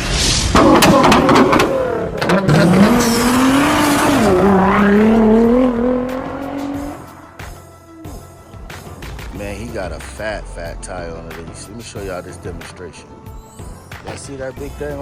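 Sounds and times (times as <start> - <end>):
car engine revving: 0.5 - 8.4.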